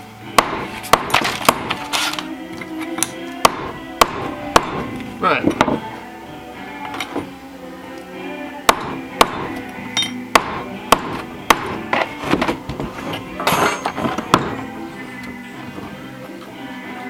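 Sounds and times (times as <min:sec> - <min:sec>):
background music: 0:00.0 - 0:17.0
hammer striking metal plates: 0:00.4 - 0:02.2, 0:02.9 - 0:05.8, 0:08.7 - 0:14.7.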